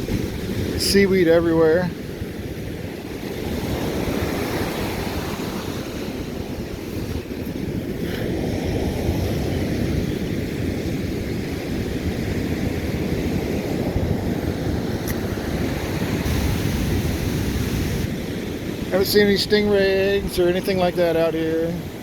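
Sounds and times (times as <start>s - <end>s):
surf breaking on beach: 0.0s - 22.0s
wind buffeting microphone: 0.0s - 22.0s.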